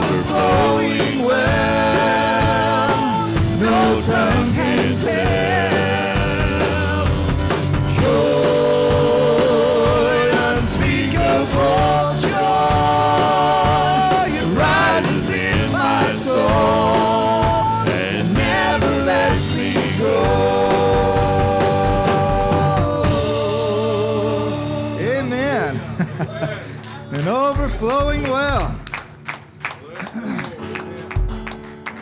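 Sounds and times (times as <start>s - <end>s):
person singing with vibrato: 0.0s - 25.6s
band playing worship music: 0.0s - 29.8s, 30.6s - 32.0s.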